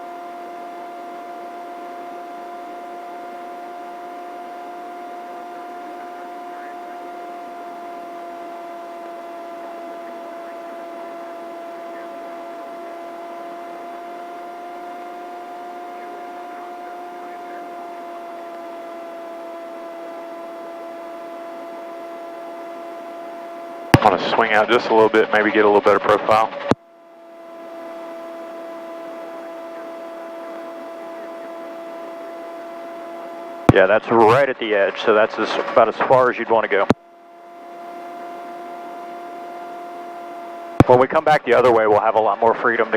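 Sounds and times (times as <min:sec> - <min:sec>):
helicopter engine and rotor drone: 0:00.0 - 0:42.9
steady tones: 0:07.4 - 0:42.9
intercom hiss: 0:24.0 - 0:26.8.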